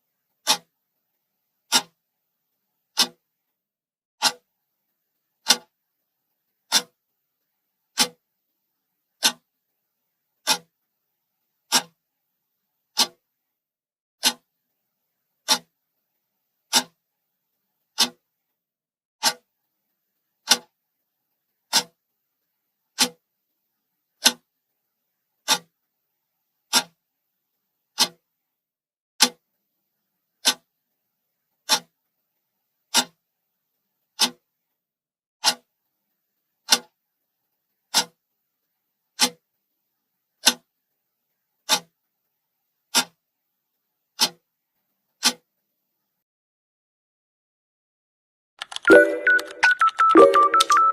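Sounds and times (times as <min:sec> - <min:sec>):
clock ticking: 0:00.4 - 0:00.7, 0:01.7 - 0:02.0, 0:03.0 - 0:03.2, 0:06.7 - 0:06.9, 0:08.0 - 0:08.2, 0:10.4 - 0:10.7, 0:13.0 - 0:13.2, 0:48.6 - 0:50.9.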